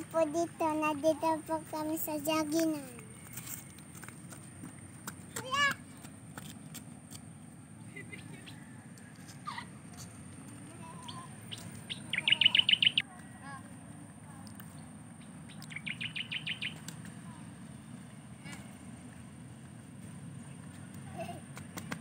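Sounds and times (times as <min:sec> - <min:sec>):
bird trilling chirps: 0:11.0 - 0:13.0, 0:15.2 - 0:16.9.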